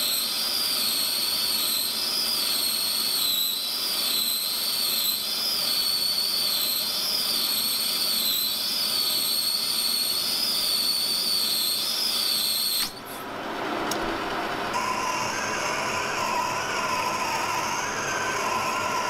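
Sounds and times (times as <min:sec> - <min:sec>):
machine tool whining: 0:00.0 - 0:19.0.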